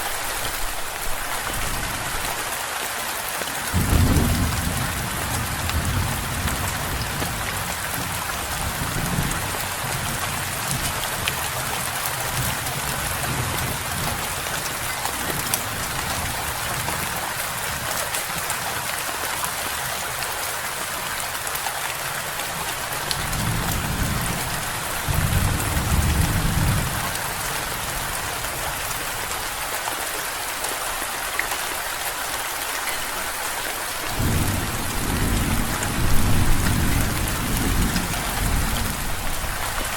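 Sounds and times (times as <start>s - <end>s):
rain falling: 0.0s - 39.9s
thunder rumbling: 3.7s - 10.5s, 22.9s - 28.5s, 34.1s - 39.9s.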